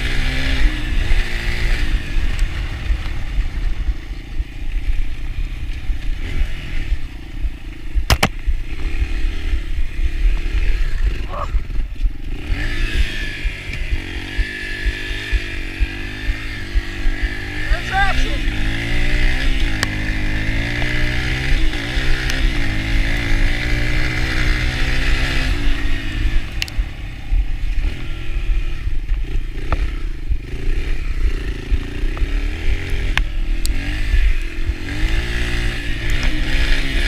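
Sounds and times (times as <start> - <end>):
dirt bike engine running: 0.0 - 37.0
sharp knock: 8.1 - 8.4.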